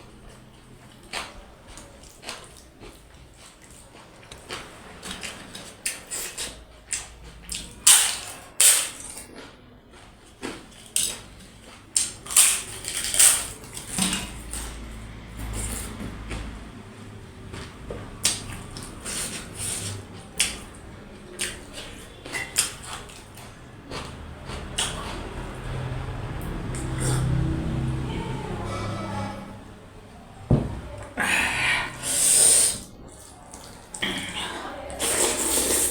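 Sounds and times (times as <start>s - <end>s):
wet chewing and lip smacks: 17.6s - 26.0s
slurps: 26.7s - 27.6s, 31.2s - 35.9s.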